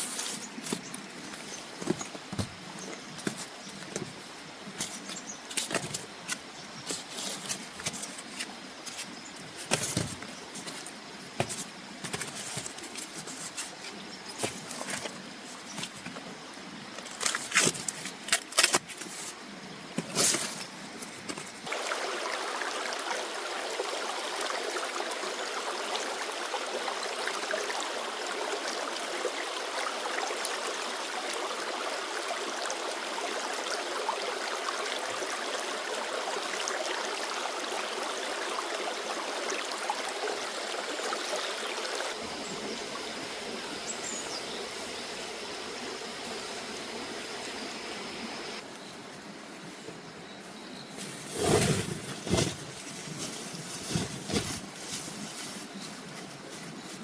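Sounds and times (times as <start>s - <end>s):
flowing stream rushing: 21.6s - 48.7s.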